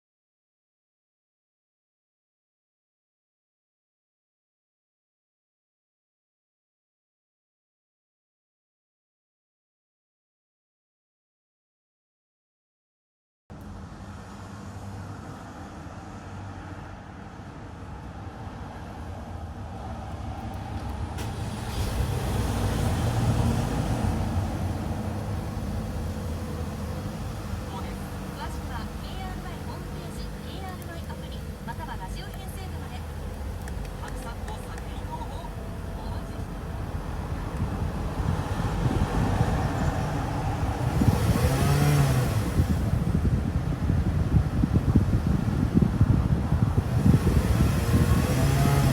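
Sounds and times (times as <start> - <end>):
steady low rumble: 16.4 - 48.4
car engine running: 21.2 - 48.9.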